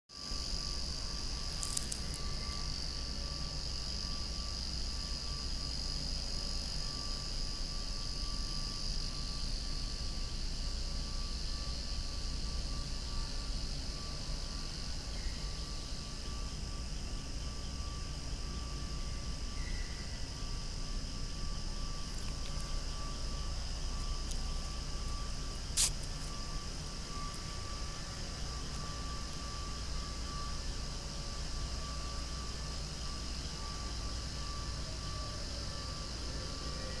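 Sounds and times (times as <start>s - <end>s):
cicadas droning: 0.1s - 37.0s
brief crackle: 1.5s - 2.7s, 25.7s - 26.4s
low steady rumble: 9.5s - 37.0s.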